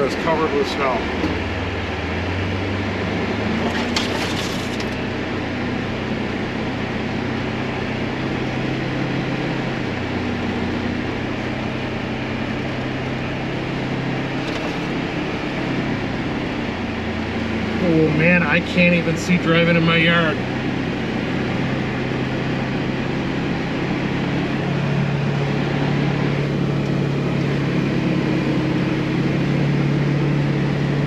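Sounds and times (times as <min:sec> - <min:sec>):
utility vehicle engine running: 0:00.0 - 0:31.0.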